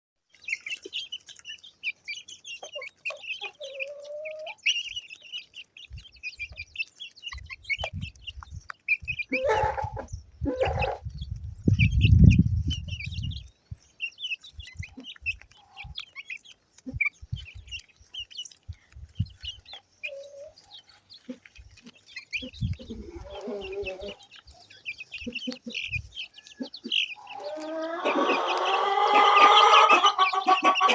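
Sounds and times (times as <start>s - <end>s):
chickens clucking: 0.3s - 30.9s
chicks peeping: 0.3s - 30.9s
loud chicken call: 9.3s - 11.0s, 23.0s - 24.2s, 27.2s - 30.9s.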